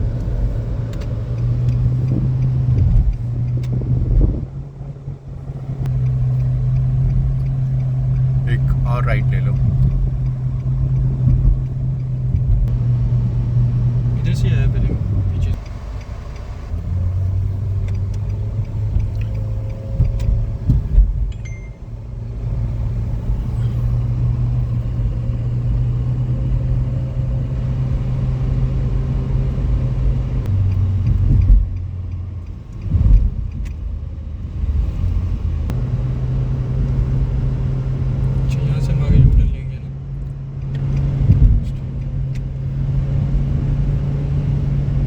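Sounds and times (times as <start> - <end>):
car engine drone: 0.0 - 45.0
road rumble: 0.0 - 45.0
dull thumps: 9.5 - 12.8, 18.9 - 21.3.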